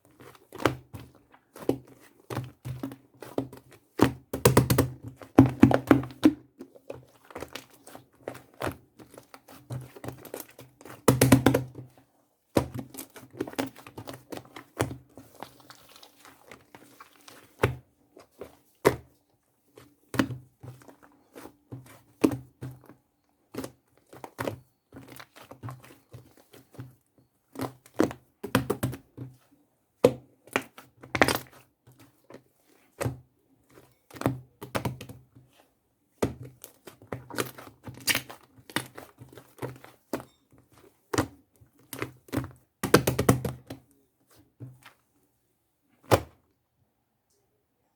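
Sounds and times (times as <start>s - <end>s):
crinkling: 12.8s - 18.8s.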